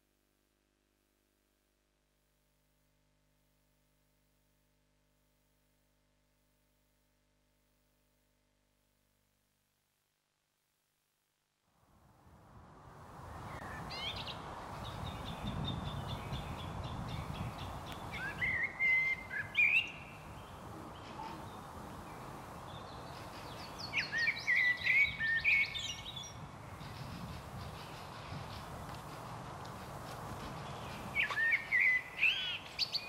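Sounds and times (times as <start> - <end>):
outdoor hiss: 11.6 - 33.0
songbird singing trills: 13.5 - 28.8, 30.6 - 33.0.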